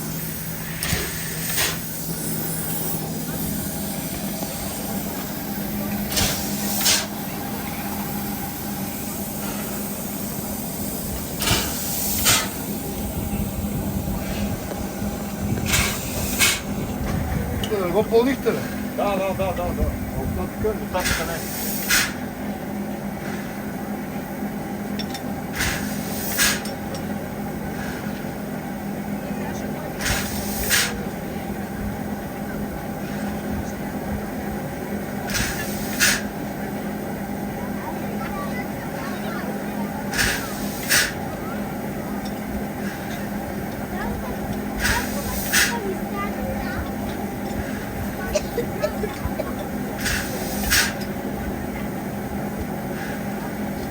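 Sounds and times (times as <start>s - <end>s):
sharp hissing bursts: 0.0s - 16.8s, 21.0s - 22.3s, 25.6s - 26.7s, 30.0s - 31.0s, 40.0s - 42.0s, 44.3s - 46.2s, 49.8s - 51.0s
train rumbling on board: 0.0s - 53.9s.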